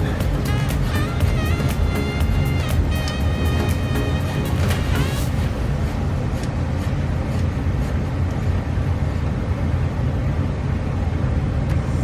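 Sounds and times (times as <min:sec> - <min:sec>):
vacuum brake bleeder droning: 0:00.0 - 0:09.2.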